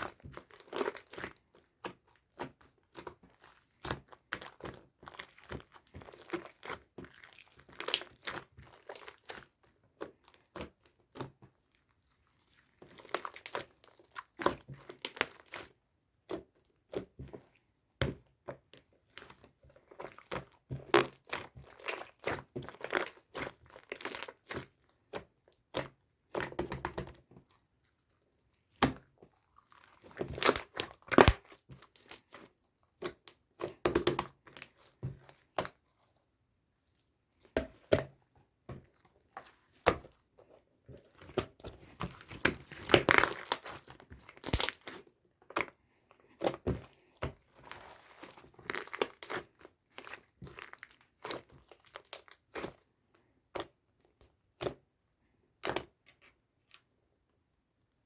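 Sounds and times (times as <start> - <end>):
slime squished by hand: 0.0 - 11.4, 12.3 - 17.5, 28.7 - 36.1, 41.0 - 52.8.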